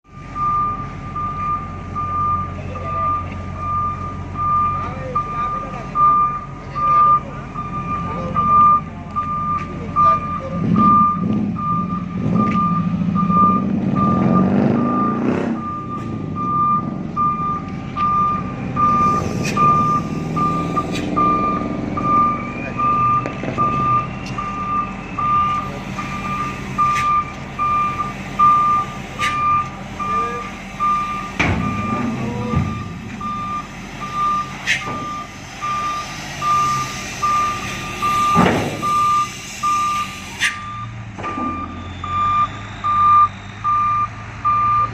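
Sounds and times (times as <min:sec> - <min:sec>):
diesel engine running: 0:00.0 - 0:44.9
truck reversing alarm beeping: 0:00.1 - 0:44.9
loud clunks: 0:31.4 - 0:33.2, 0:38.2 - 0:38.9.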